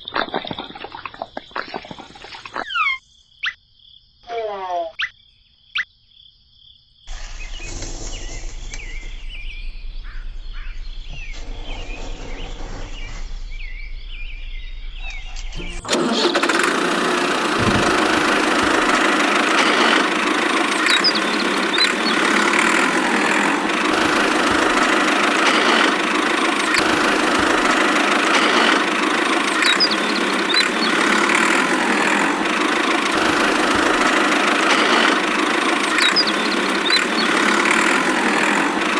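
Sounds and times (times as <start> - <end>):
small motor running: 15.0 - 38.9.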